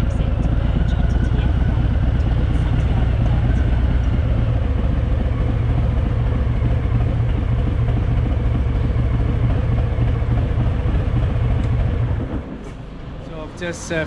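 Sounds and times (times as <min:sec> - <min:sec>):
motorcycle engine idling: 0:00.0 - 0:12.6.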